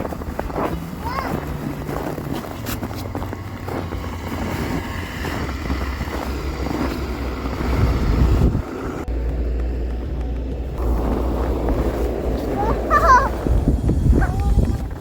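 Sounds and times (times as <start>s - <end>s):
wind buffeting microphone: 3.1s - 15.0s.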